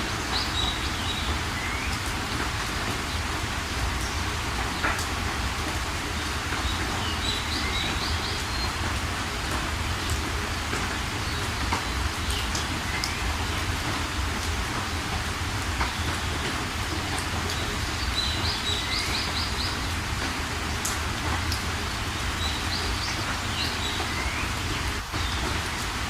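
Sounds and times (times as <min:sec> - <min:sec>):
steady rain: 0:00.0 - 0:26.0
small birds chirping: 0:06.1 - 0:08.9, 0:15.8 - 0:20.0.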